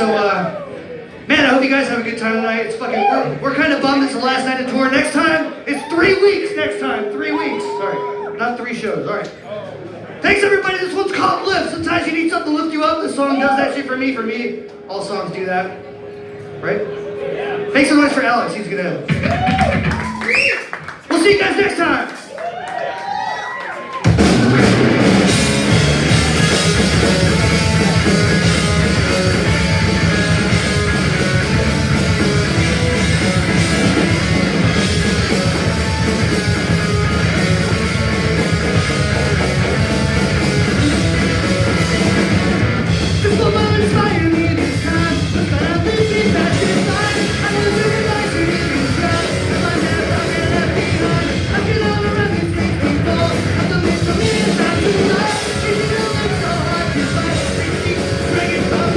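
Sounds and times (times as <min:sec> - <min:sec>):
bass guitar: 0:19.0 - 0:20.2, 0:24.0 - 0:58.9
drums: 0:19.0 - 0:58.9
electric guitars: 0:22.1 - 0:58.9
person singing: 0:43.1 - 0:58.9.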